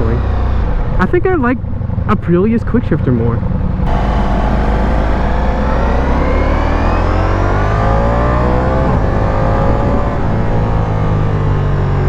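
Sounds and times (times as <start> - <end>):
motorcycle engine accelerating: 3.9 - 9.4.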